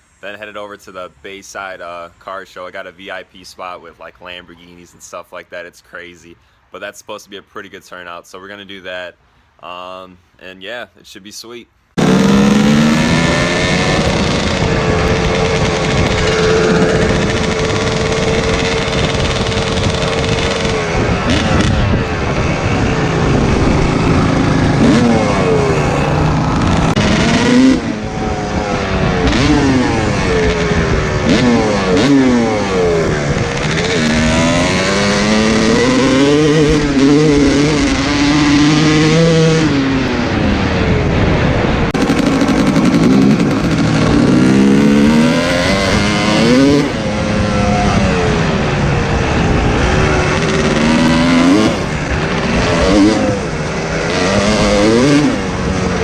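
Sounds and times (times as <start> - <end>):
dirt bike engine revving: 12.0 - 56.0.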